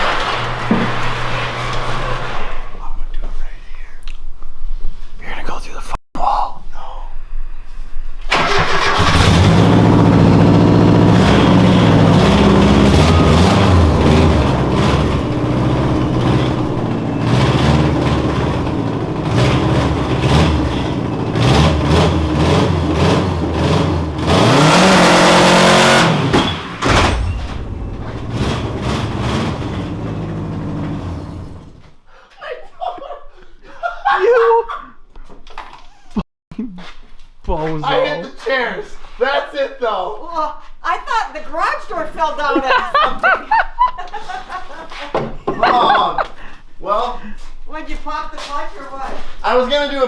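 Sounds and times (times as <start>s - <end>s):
car engine revving hard: 8.3s - 31.8s.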